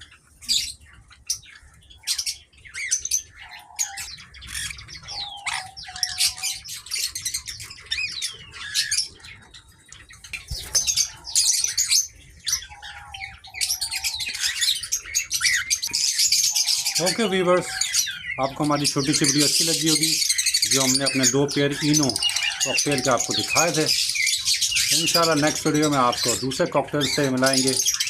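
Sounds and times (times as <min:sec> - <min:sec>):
cockatiels chirping and squawking: 0:00.0 - 0:28.0.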